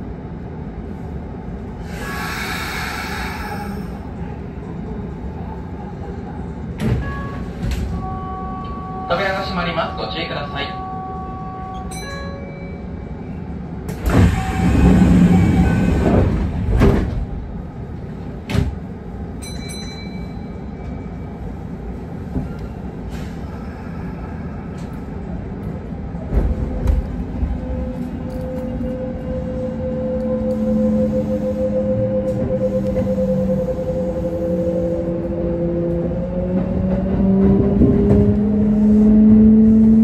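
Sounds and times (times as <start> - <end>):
train doors closing with air rush: 0.9 - 4.7, 6.0 - 8.8, 13.8 - 19.2, 21.7 - 40.0
train motor whine: 27.6 - 39.8.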